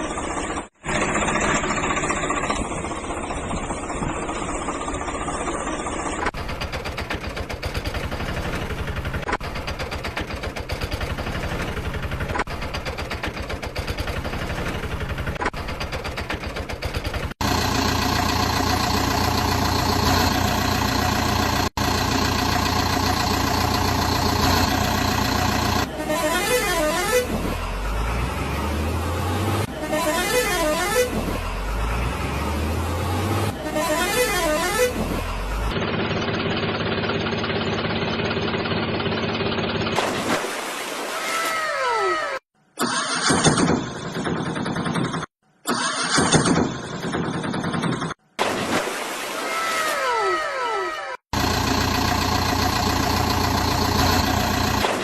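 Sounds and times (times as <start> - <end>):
engines running: 0.0 - 40.0, 51.3 - 55.0.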